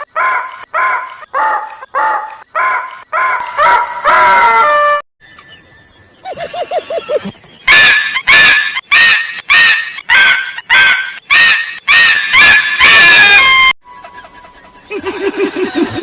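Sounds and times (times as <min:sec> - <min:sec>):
harsh squawking cries: 0:00.0 - 0:05.0, 0:07.7 - 0:13.8.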